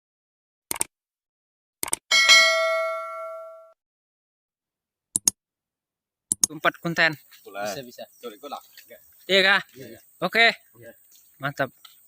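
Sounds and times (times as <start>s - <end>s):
bell-like ding: 2.1s - 3.8s.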